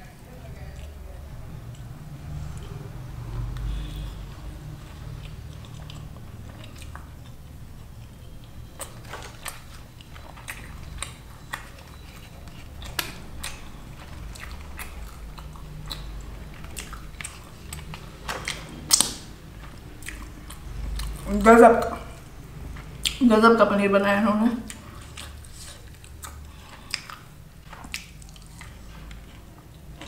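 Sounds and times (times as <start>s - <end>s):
wet chewing mouth sounds: 1.7s - 23.2s, 24.6s - 30.0s.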